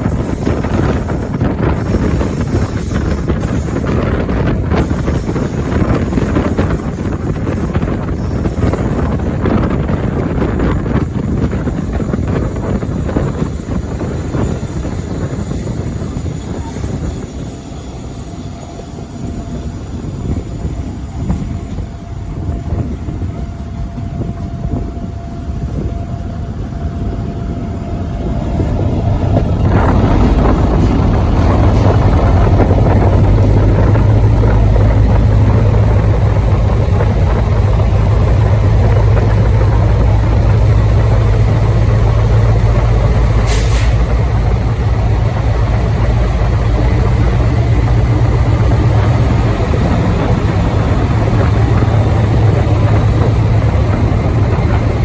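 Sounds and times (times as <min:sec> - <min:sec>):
diesel locomotive engine drone: 0:00.0 - 0:55.0
brief hiss: 0:43.5 - 0:44.1.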